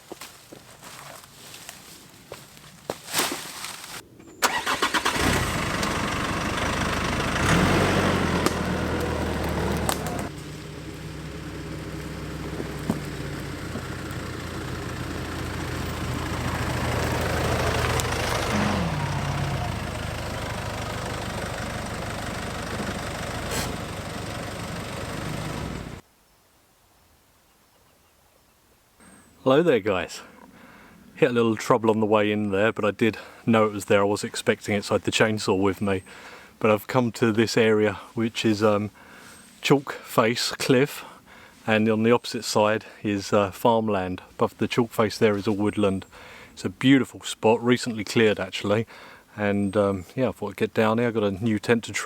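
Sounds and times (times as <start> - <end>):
petrol engine running: 4.4 - 26.0.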